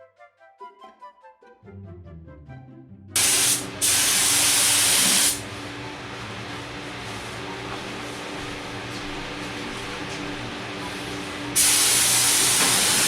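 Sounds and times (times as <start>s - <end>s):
background music: 0.0s - 3.2s
spray gun hissing: 3.2s - 5.4s, 11.6s - 13.0s.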